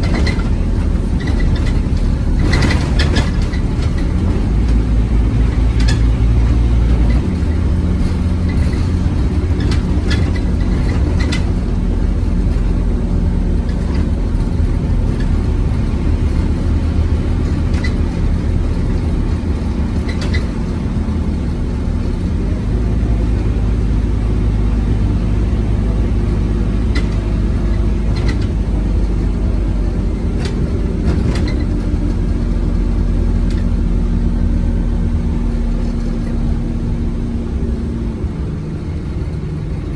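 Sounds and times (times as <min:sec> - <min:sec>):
sharp clicks and rattles: 0:00.0 - 0:22.6, 0:26.6 - 0:34.4
bus engine running: 0:00.0 - 0:39.9.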